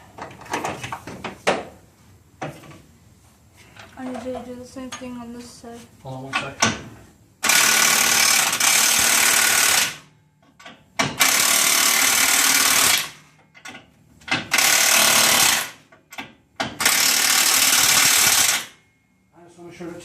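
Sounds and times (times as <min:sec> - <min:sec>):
impact wrench running: 0:07.4 - 0:10.1, 0:11.0 - 0:13.3, 0:14.3 - 0:15.9, 0:16.6 - 0:18.8.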